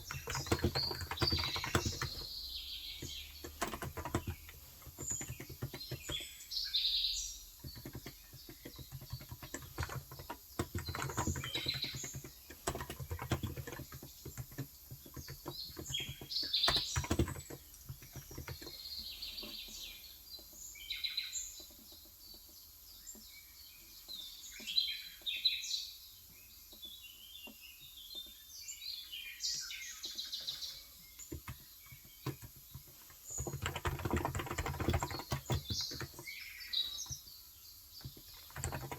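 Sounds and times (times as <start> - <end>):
keyboard typing clicks: 0.0 - 6.2, 7.6 - 18.8, 31.2 - 36.3, 38.0 - 38.9
small birds chirping: 0.0 - 38.9.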